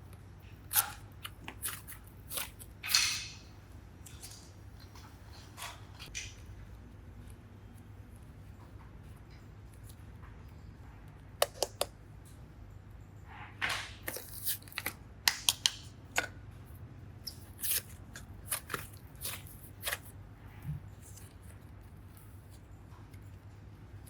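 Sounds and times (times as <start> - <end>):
rustling crinkling scrapes: 17.3 - 23.6.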